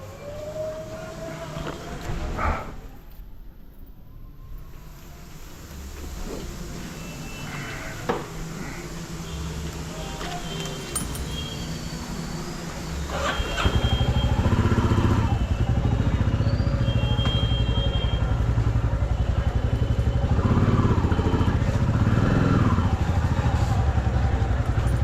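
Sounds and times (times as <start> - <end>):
motorcycle engine revving: 11.2 - 25.0.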